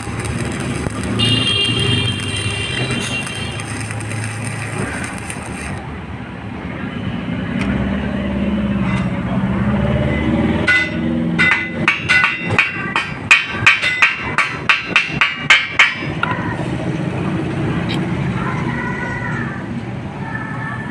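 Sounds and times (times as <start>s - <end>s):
hammer striking metal: 10.6s - 16.4s.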